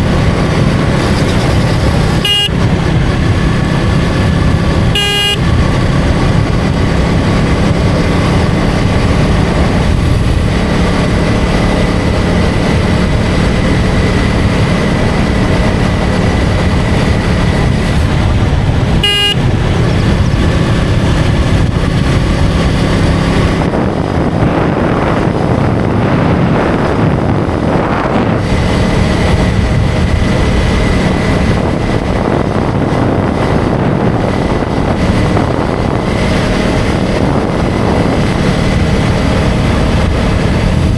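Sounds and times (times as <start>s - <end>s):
motorcycle engine running: 0.0s - 40.9s
road and wind noise: 0.0s - 40.9s
short horn beep: 2.1s - 2.8s, 5.0s - 5.6s, 19.0s - 19.6s.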